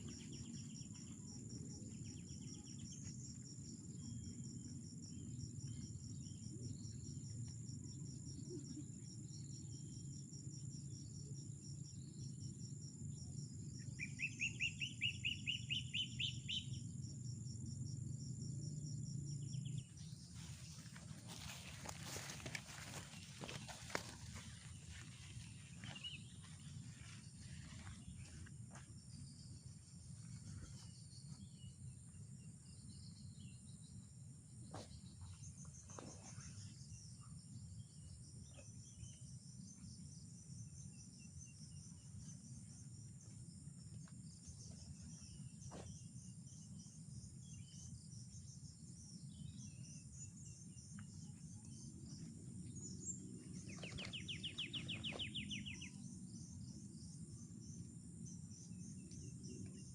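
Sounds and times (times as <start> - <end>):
insects buzzing: 9.2 - 59.9.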